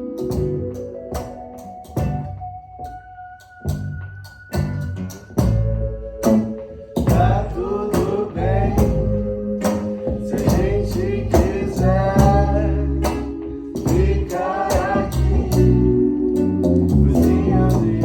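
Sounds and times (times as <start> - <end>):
guitar: 0.0 - 18.0
percussion beat: 0.0 - 18.0
person singing: 7.0 - 18.0.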